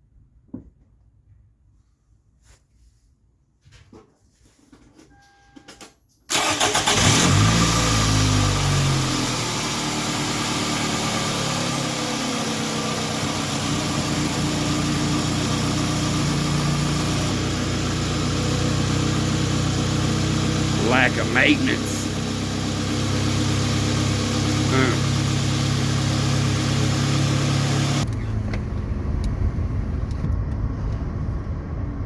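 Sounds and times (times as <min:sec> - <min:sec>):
short beep: 0:05.1 - 0:05.8
car engine starting and idling: 0:06.3 - 0:32.0.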